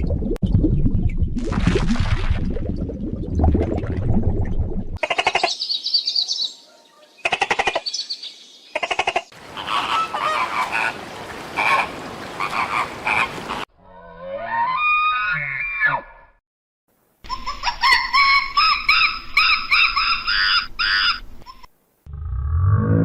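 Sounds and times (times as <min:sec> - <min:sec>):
overlapping animal calls: 0:08.7 - 0:13.7
animal call rising in pitch: 0:13.8 - 0:16.3, 0:22.1 - 0:23.0.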